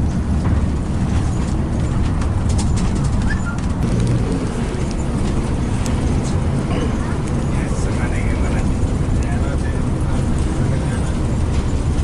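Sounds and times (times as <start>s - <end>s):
bus engine rumbling: 0.0s - 12.0s
brief squeak: 3.2s - 3.8s.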